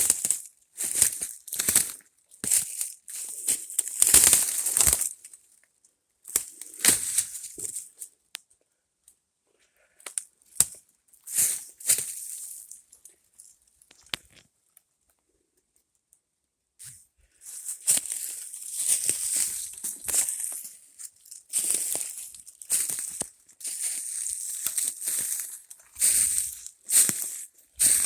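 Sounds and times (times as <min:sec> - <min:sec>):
footsteps crunching through dry leaves: 0:00.0 - 0:05.2, 0:06.4 - 0:08.0, 0:11.3 - 0:12.7, 0:17.4 - 0:28.0.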